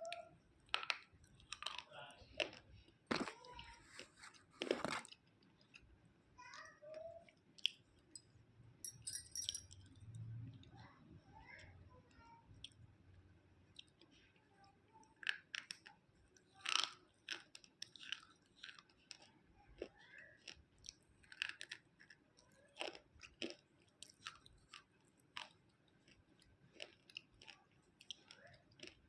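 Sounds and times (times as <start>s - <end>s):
person chewing crunchy food: 0.0s - 5.9s, 15.1s - 29.0s.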